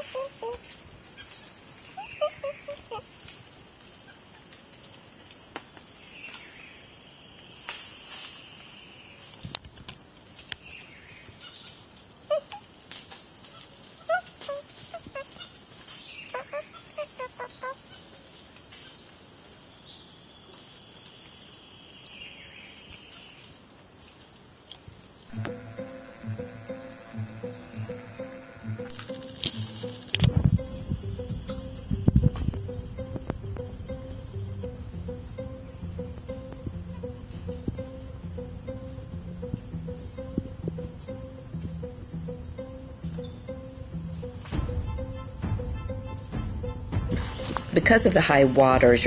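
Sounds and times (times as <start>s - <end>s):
short chirping animal calls: 2.0s - 3.0s, 14.0s - 18.0s
high-pitched insect drone: 25.3s - 47.7s.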